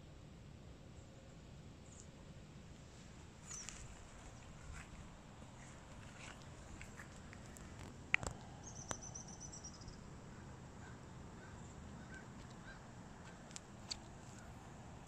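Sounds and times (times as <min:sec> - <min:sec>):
quiet low hum: 0:00.0 - 0:15.0
faint soft chirps: 0:08.5 - 0:10.1.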